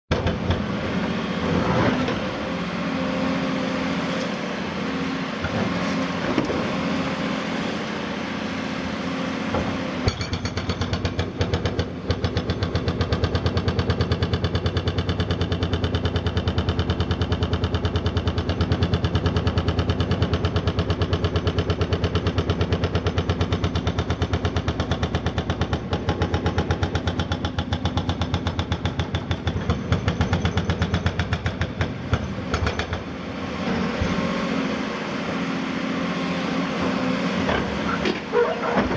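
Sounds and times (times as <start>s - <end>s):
diesel engine running: 12.9s - 38.9s.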